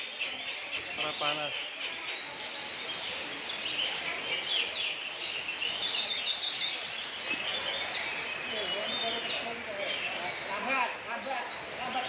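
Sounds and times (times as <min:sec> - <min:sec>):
songbirds singing and chirping: 0:00.0 - 0:12.0.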